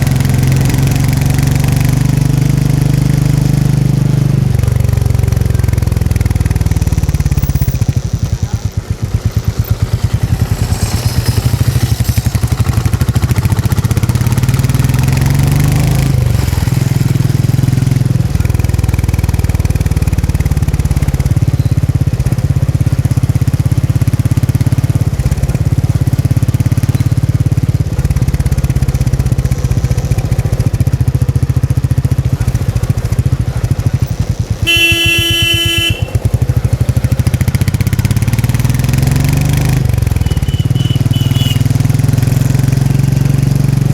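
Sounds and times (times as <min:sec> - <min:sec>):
motorcycle engine thumping: 0:00.0 - 0:43.9
vehicle horn blaring: 0:34.6 - 0:36.5, 0:40.1 - 0:42.0.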